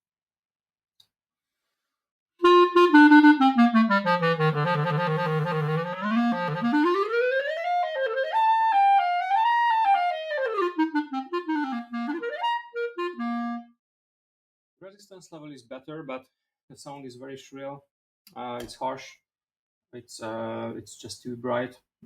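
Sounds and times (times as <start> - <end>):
shrill clarinet playing: 2.4 - 13.8.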